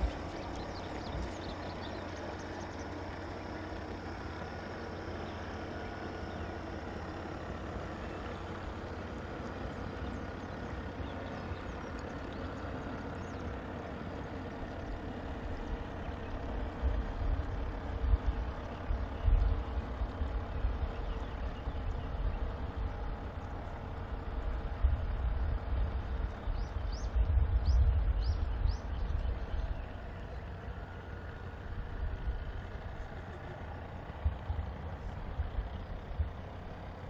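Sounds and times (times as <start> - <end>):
wind rumbling on microphone: 0.0 - 2.8, 15.9 - 30.5, 33.8 - 37.0
faint steady hum: 0.0 - 37.0.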